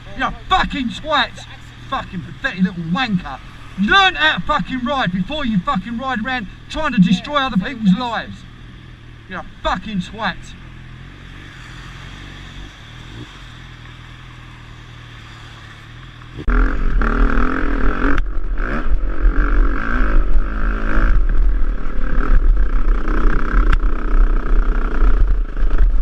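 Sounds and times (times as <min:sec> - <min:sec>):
motorcycle engine idling: 0:00.0 - 0:11.5
motorcycle engine revving: 0:00.0 - 0:26.0
wind rumble on microphone: 0:16.7 - 0:26.0.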